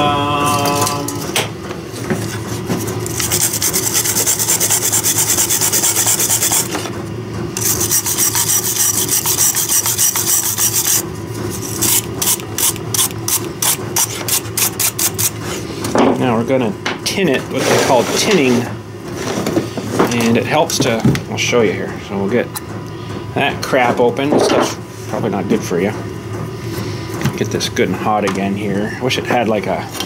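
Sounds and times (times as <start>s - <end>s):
steady low hum: 0.0s - 30.0s
hand scraping strokes: 2.3s - 6.8s, 7.6s - 15.8s.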